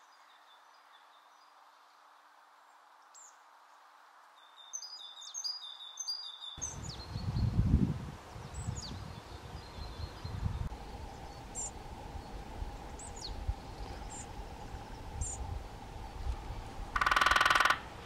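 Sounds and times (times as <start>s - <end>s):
faint steady hum: 7.0s - 18.0s
high-pitched bird calls: 17.0s - 17.9s.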